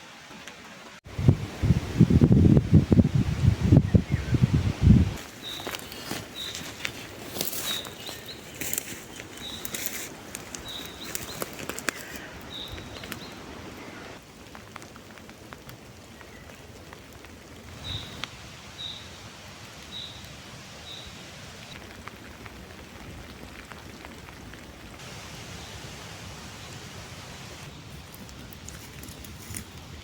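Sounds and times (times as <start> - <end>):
light rain hiss: 0.0 - 30.0
crackling clicks: 5.2 - 13.4.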